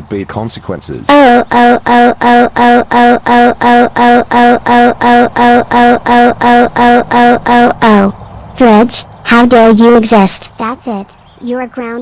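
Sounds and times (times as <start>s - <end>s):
stuttering voice-like tone: 1.1s - 8.1s.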